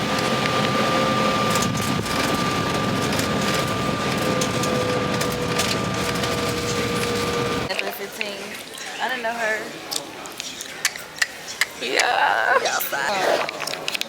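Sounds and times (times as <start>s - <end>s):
constant high whine: 0.0s - 7.7s
vehicle engine drone: 0.0s - 7.7s.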